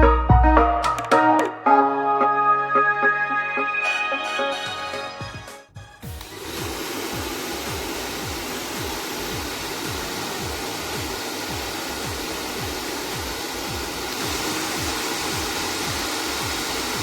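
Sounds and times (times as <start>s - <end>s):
background music with thumping beat: 0.0s - 1.9s, 3.9s - 17.0s
hair dryer blowing air: 6.1s - 17.0s.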